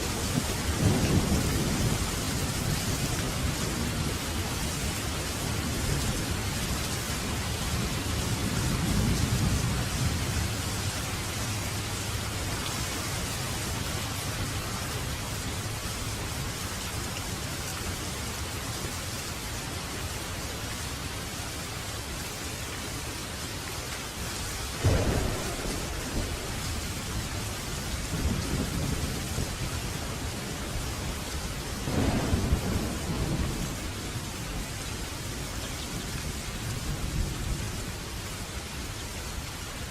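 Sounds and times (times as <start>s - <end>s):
steady rain: 0.0s - 39.9s
rolling thunder: 0.1s - 13.0s, 24.8s - 37.9s
sharp thunderclap: 0.3s - 4.3s, 24.8s - 31.2s, 31.8s - 34.8s.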